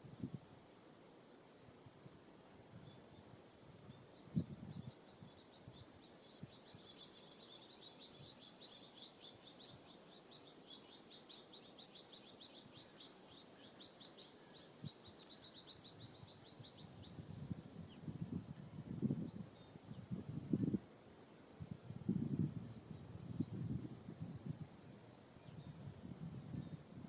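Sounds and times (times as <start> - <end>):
faint songbird calling: 2.8 - 20.2.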